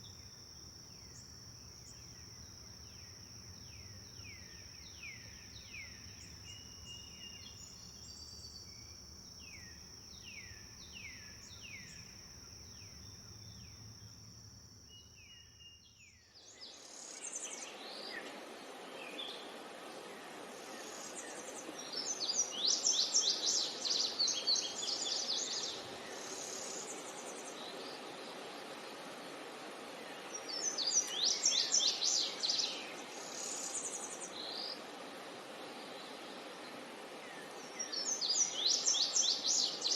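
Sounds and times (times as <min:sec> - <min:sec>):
high insect drone: 0:00.0 - 0:15.8.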